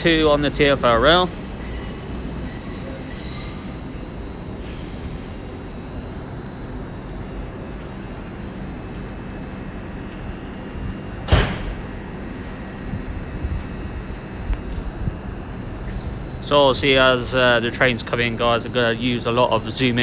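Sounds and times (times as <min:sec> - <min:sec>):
trains rumbling: 0:00.0 - 0:09.1
sharp loud bang: 0:11.3 - 0:11.9.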